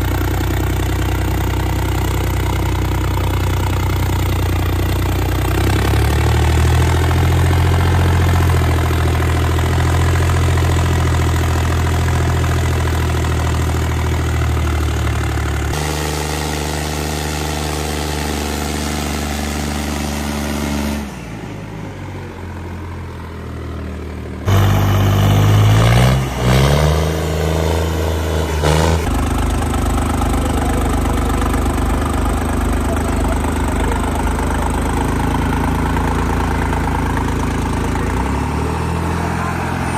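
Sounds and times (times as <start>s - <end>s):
tractor diesel engine idling: 0.0s - 39.9s
engine revving: 4.3s - 11.9s, 15.4s - 21.6s, 24.4s - 39.9s.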